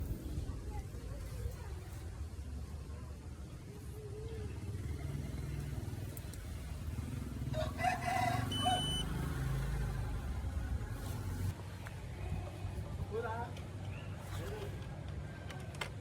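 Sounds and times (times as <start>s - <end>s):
rooster crowing: 7.5s - 9.1s.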